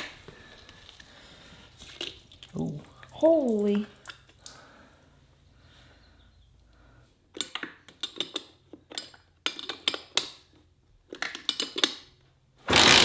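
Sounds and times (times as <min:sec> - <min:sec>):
dirt bike engine sputtering: 0:12.7 - 0:13.0.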